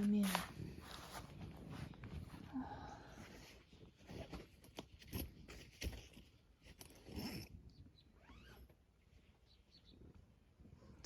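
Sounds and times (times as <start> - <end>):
faint rustling and handling noise: 0.0 - 7.6.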